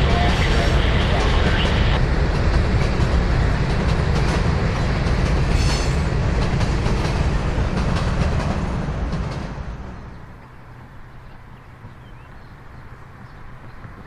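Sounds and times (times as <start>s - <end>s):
train wheels clicking over rail joints: 0.0s - 10.6s.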